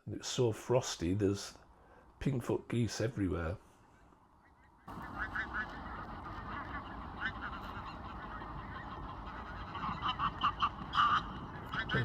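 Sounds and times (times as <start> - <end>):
geese honking: 4.8 - 12.0.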